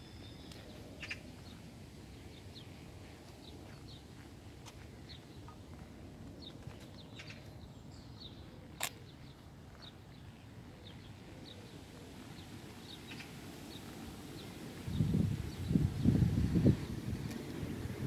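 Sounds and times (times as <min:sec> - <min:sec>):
wind buffeting microphone: 0:14.3 - 0:18.0.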